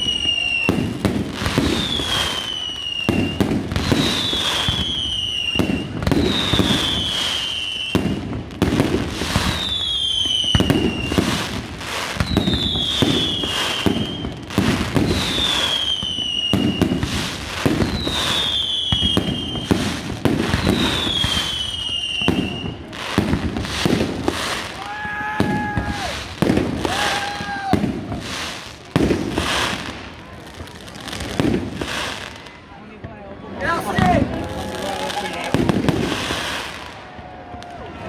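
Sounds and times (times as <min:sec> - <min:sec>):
whistling firework shot: 0:00.0 - 0:29.8
fireworks bangs and crackles: 0:00.0 - 0:38.0.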